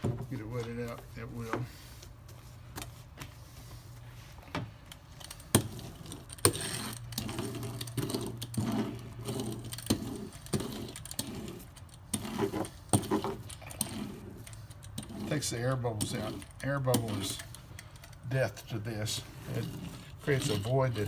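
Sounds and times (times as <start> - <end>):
sharp clicks and rattles: 5.1 - 18.3
roller rolling over wet mat: 5.7 - 14.4.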